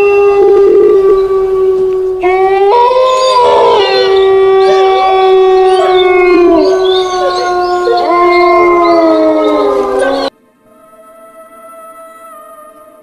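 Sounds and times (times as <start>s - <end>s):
eerie howl-like held tones: 0.0s - 13.0s.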